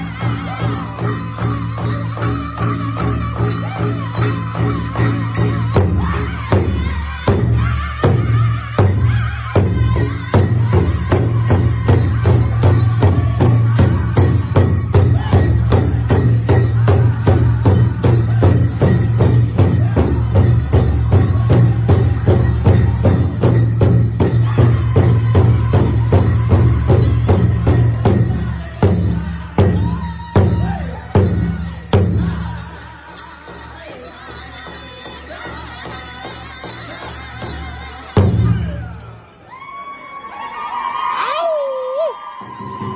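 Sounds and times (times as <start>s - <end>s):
steady jingling: 0.0s - 40.1s
high singing voices: 0.0s - 40.3s
large drum beating: 4.5s - 32.6s.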